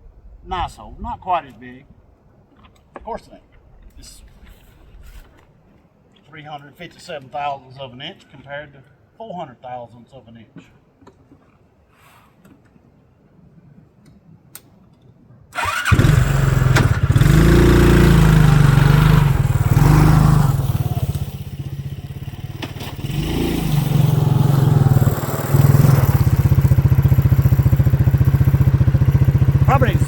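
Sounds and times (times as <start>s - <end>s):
small vehicle engine running: 15.6s - 30.0s.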